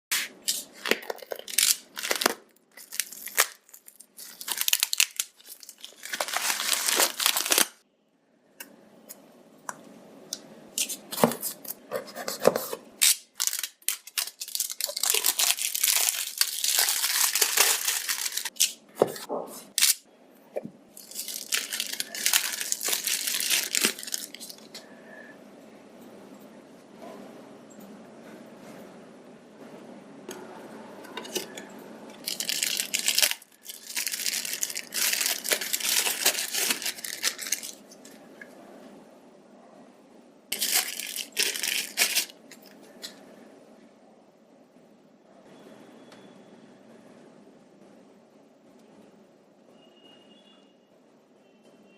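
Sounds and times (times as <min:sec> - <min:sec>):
packaging ripping and crinkling: 0:00.1 - 0:07.8, 0:11.2 - 0:20.1, 0:21.0 - 0:24.8, 0:31.2 - 0:38.0, 0:40.5 - 0:42.8.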